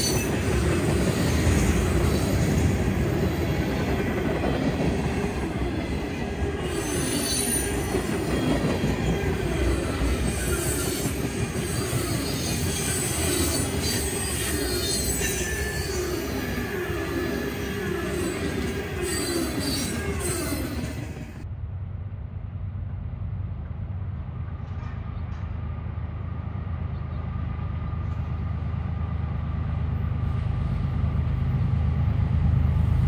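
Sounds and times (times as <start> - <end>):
faint high wheel squeal: 0.0 - 2.6, 6.6 - 21.4
train wheels rumbling on rail: 0.0 - 33.0.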